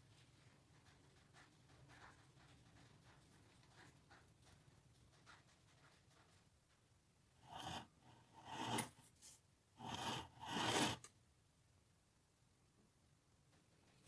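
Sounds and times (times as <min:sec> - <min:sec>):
short scraping strokes: 0:07.4 - 0:11.1.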